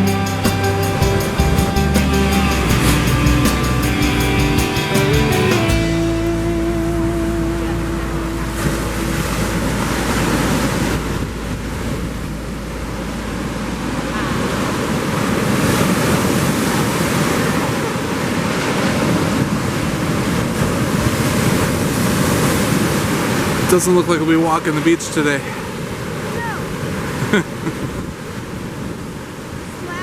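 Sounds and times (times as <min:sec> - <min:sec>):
waves breaking on shore: 0:13.0 - 0:30.0.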